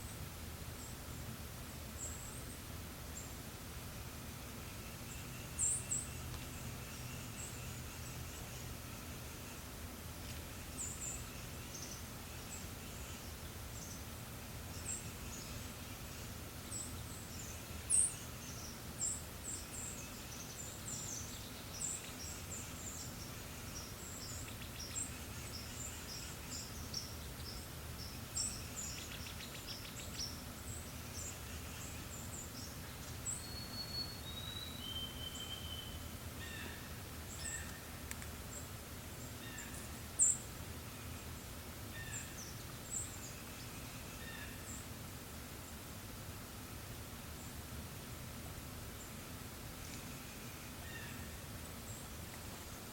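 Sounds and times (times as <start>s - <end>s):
low background noise: 0.0s - 52.9s
songbirds chirping: 0.0s - 52.9s.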